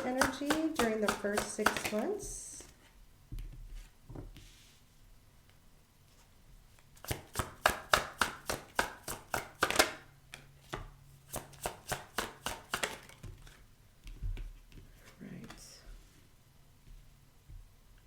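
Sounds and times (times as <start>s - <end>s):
cards being shuffled: 0.0s - 2.8s, 7.0s - 10.0s, 10.7s - 13.6s.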